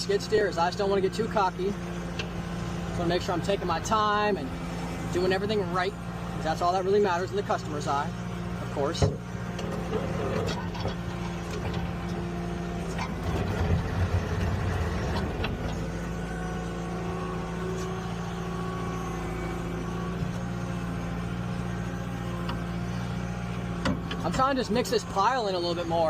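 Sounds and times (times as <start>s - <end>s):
skid steer engine running: 0.0s - 26.0s.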